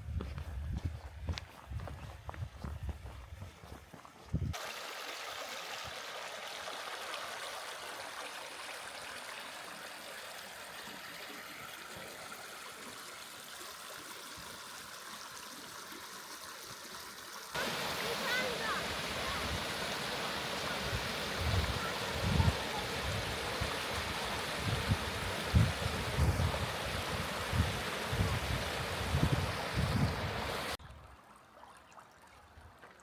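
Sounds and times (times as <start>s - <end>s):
footsteps: 0.0s - 4.6s
stream water rushing: 4.5s - 30.8s.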